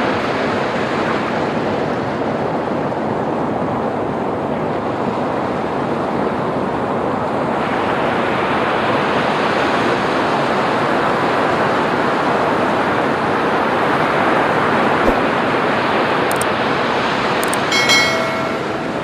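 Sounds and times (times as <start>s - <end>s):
waves breaking on a beach: 4.8s - 14.4s
short chime: 17.4s - 19.0s.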